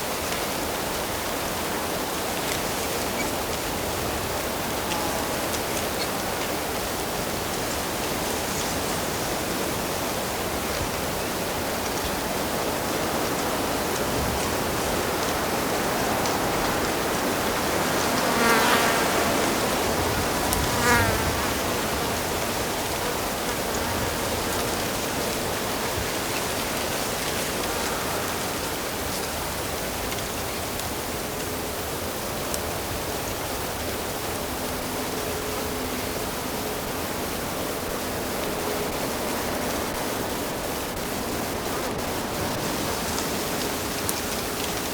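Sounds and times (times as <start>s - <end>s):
flying insect buzzing: 17.5s - 25.4s.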